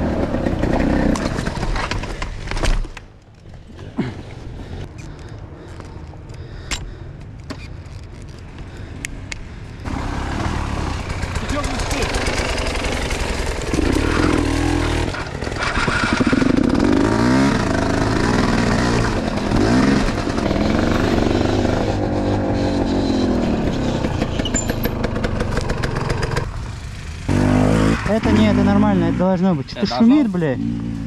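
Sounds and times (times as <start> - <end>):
motorcycle engine revving: 0.0 - 1.8, 9.8 - 31.0.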